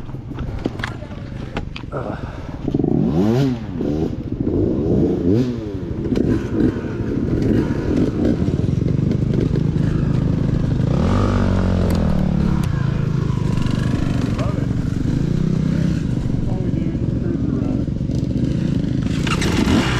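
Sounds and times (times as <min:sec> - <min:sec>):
bike clattering over rough ground: 0:00.0 - 0:01.9, 0:19.0 - 0:19.9
dirt bike engine revving: 0:02.7 - 0:19.9.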